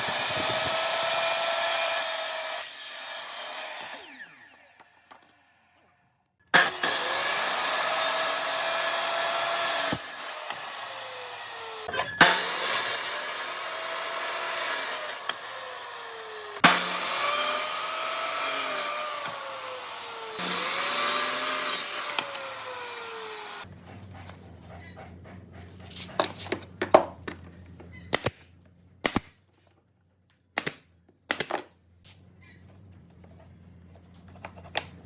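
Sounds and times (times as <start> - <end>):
power tool whining: 0.0 - 23.7.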